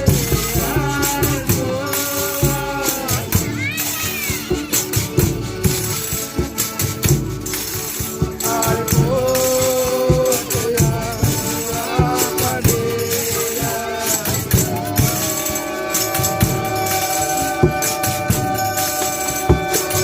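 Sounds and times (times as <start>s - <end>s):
shaken and struck percussion: 0.0s - 20.0s
voices singing: 0.0s - 20.0s
long held notes: 11.6s - 20.0s.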